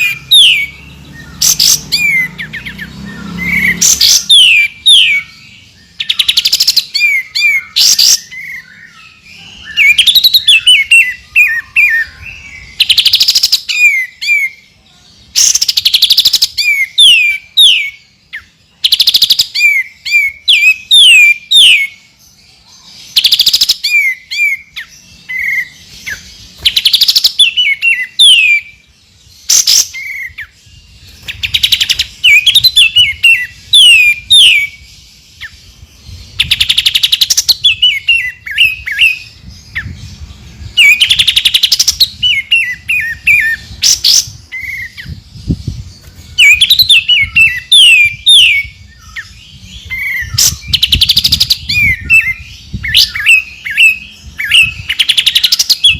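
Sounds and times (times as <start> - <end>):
bird singing whistles and rattles: 9.7 - 14.5, 23.2 - 28.8, 29.4 - 35.5, 36.3 - 40.1, 40.7 - 55.9.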